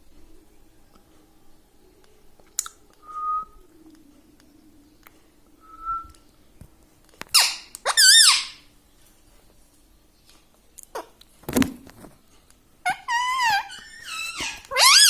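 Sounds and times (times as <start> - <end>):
parrot harsh screech: 7.3 - 8.6, 12.8 - 15.0
parrot chirp: 7.3 - 8.7, 12.8 - 15.0
parrot warbling call: 7.3 - 8.7, 12.8 - 15.0
parrot whistled notes: 7.4 - 8.6, 13.1 - 15.0.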